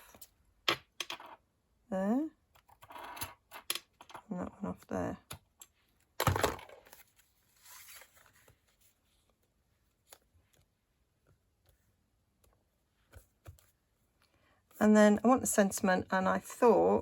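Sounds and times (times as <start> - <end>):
paper rustling: 6.8 - 10.7.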